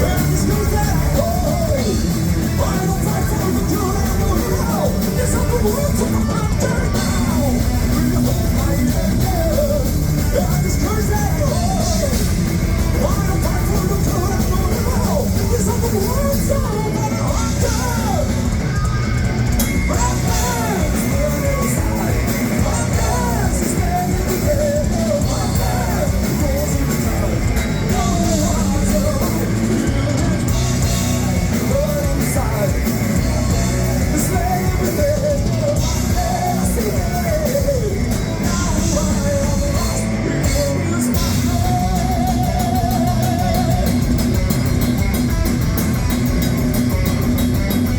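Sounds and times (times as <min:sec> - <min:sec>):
live heavy metal band: 0:00.0 - 0:47.9
sung and shouted vocals: 0:19.8 - 0:44.2.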